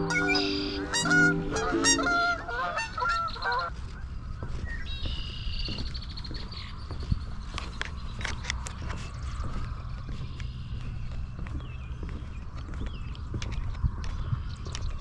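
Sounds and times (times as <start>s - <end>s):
geese honking: 0.0s - 4.0s.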